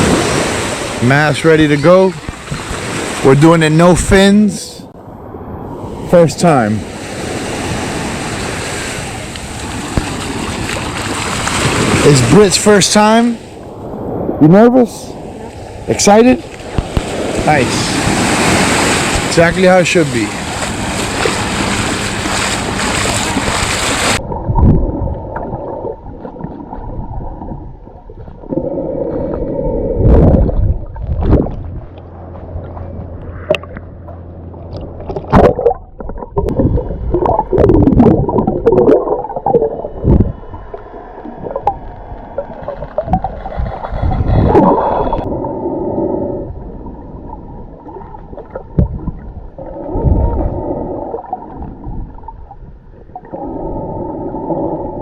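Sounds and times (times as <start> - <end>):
surf: 0.0 - 4.6, 5.4 - 25.5
sharp knocks or splashes: 9.7 - 12.3, 20.2 - 24.8, 32.6 - 36.6
muffled underwater gurgling: 34.6 - 55.0.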